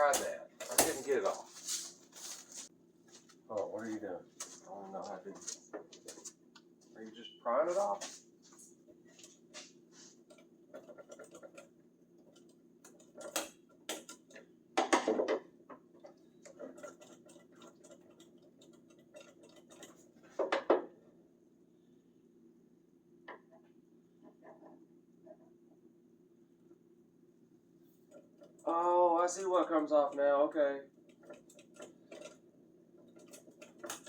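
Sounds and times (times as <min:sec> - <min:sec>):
screwdriver prying and scraping: 0:00.0 - 0:02.4, 0:09.2 - 0:11.7, 0:12.3 - 0:14.4, 0:31.1 - 0:34.0.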